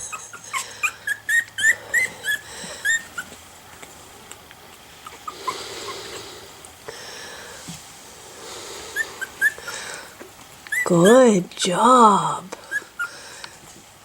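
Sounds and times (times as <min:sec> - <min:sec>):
puppies squeaking: 0:00.0 - 0:03.4, 0:05.0 - 0:06.2, 0:08.9 - 0:09.8, 0:10.6 - 0:11.1, 0:12.6 - 0:13.2
faint hiss: 0:03.9 - 0:14.0.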